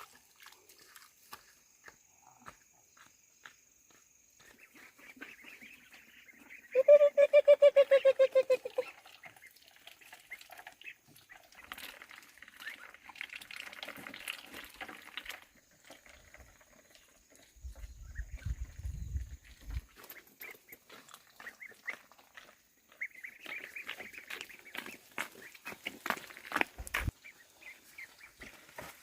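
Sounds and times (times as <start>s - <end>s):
duck quacking: 4.4s - 8.9s.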